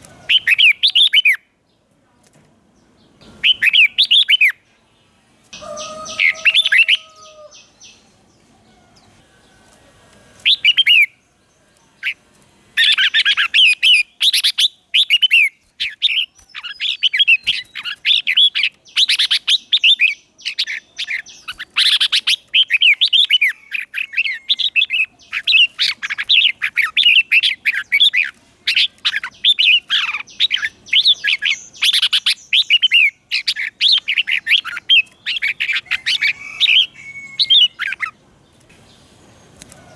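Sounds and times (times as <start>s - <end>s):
bird warbling: 5.6s - 8.0s, 12.8s - 38.2s.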